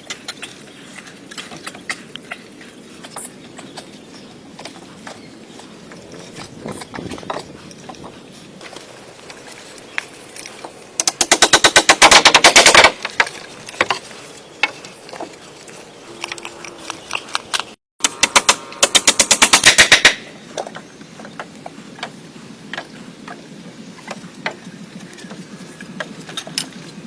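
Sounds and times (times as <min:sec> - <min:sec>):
rapid mechanical hammering: 0:11.0 - 0:13.0, 0:18.0 - 0:20.2.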